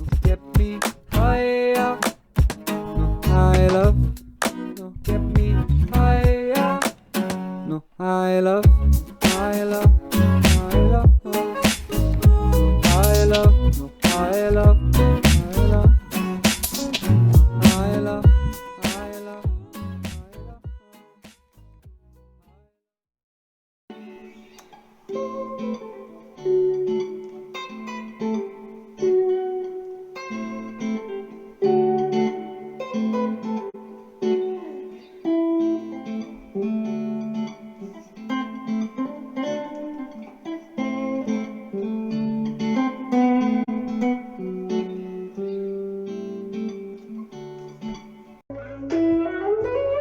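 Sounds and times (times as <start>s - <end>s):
picked guitar melody: 0.0s - 21.8s, 23.9s - 50.0s.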